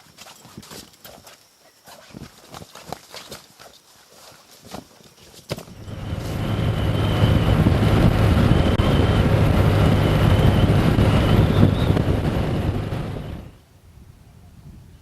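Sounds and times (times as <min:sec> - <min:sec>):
faint high whine: 0:05.7 - 0:13.8
vehicle passing by: 0:05.8 - 0:13.5.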